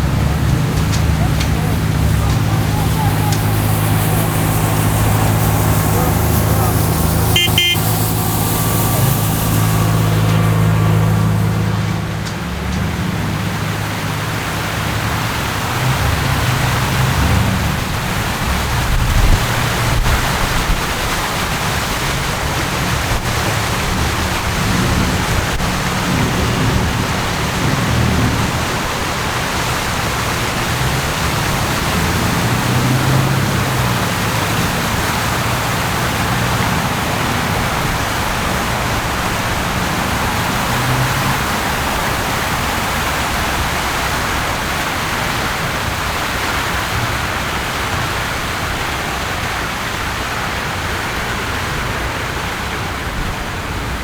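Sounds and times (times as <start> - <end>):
city street hiss: 0.0 - 54.0
vehicle engines humming: 0.0 - 54.0.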